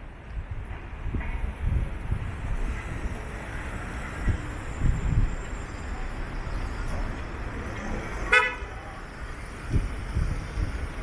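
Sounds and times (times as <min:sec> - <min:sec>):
low street rumble: 0:00.0 - 0:11.0
vehicle horn toot: 0:08.2 - 0:08.7.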